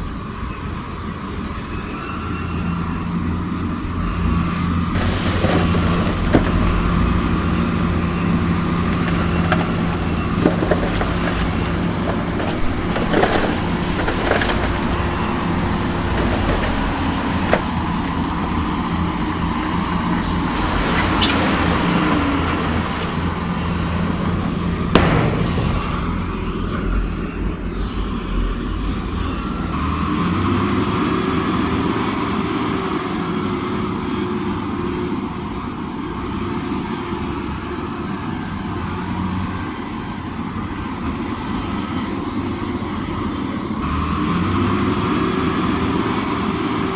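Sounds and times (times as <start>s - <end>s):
diesel machinery running: 0.0s - 46.9s
sharp bang: 24.9s - 27.7s.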